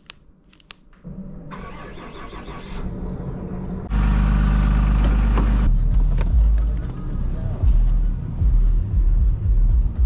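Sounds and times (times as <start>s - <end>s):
truck engine running: 3.2s - 6.7s.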